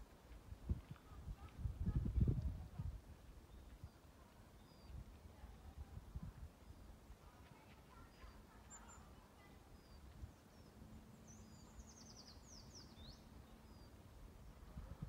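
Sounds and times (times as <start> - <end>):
low wind rumble: 0.0 - 7.3, 9.6 - 15.0
faint songbirds chirping: 3.0 - 15.0.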